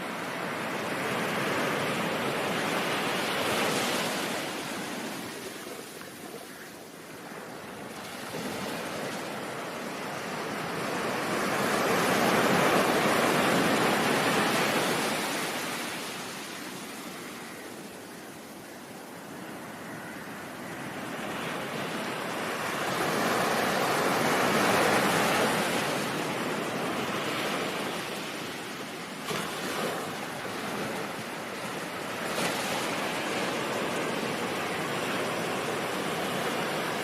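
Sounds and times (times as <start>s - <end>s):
ocean surf: 0.0s - 37.0s.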